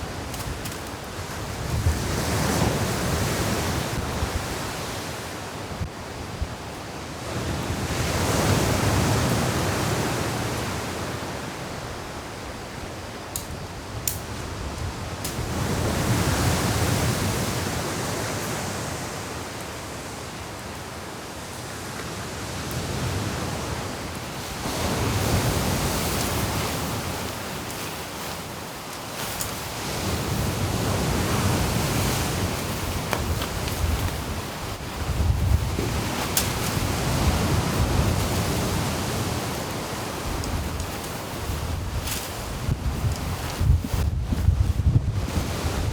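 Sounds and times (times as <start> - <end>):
strong wind: 0.0 - 12.8, 22.2 - 45.9
waves breaking: 22.0 - 45.9.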